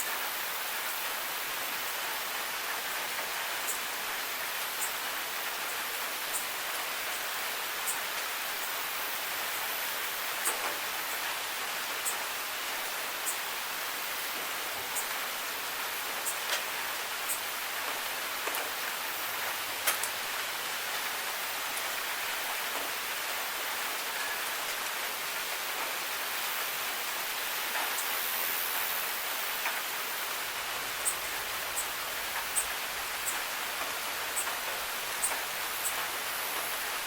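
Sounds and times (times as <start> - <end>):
steady rain hiss: 0.0 - 37.0.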